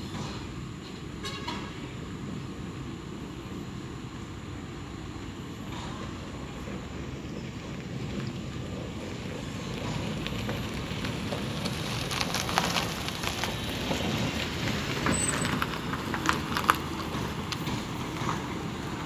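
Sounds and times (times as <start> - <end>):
vehicle rumbling on dirt road: 0.0 - 19.0
sharp clicks and knocks: 15.5 - 18.6.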